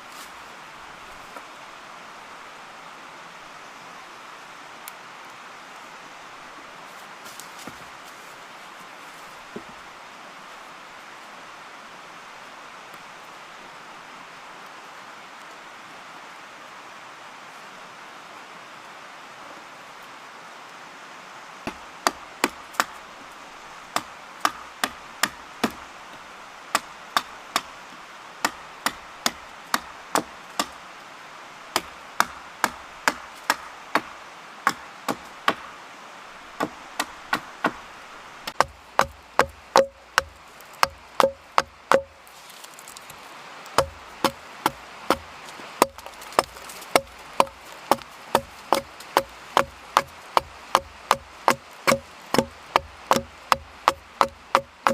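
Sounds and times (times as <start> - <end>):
wood being chopped: 21.7 - 23.0, 24.0 - 25.8, 28.4 - 30.8, 31.8 - 34.1, 34.7 - 35.6, 38.5 - 43.1, 43.8 - 54.9.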